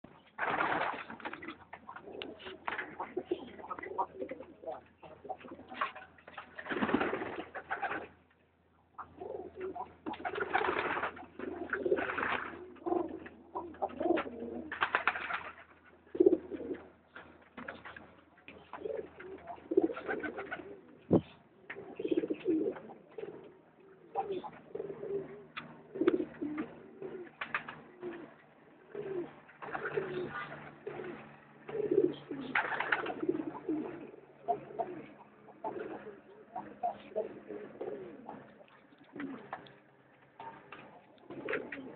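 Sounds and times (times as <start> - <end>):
pigeons cooing: 0.1 - 8.2, 9.0 - 41.9.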